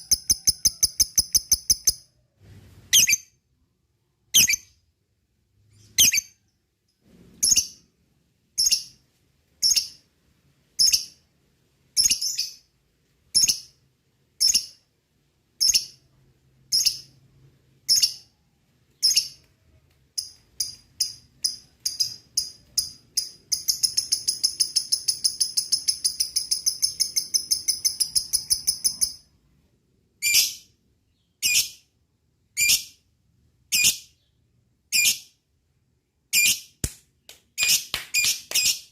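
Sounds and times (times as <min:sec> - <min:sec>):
lovebird chirping and trilling: 0:00.0 - 0:02.1, 0:02.9 - 0:03.4, 0:04.3 - 0:04.8, 0:05.7 - 0:06.4, 0:07.4 - 0:07.8, 0:08.6 - 0:09.0, 0:09.6 - 0:10.1, 0:10.8 - 0:11.2, 0:12.0 - 0:12.7, 0:13.3 - 0:13.8, 0:14.4 - 0:14.8, 0:15.6 - 0:16.0, 0:16.7 - 0:17.2, 0:17.9 - 0:18.3, 0:19.0 - 0:19.5, 0:20.2 - 0:29.3, 0:30.2 - 0:31.9, 0:32.6 - 0:33.0, 0:33.7 - 0:35.4, 0:36.3 - 0:36.7, 0:37.6 - 0:38.9.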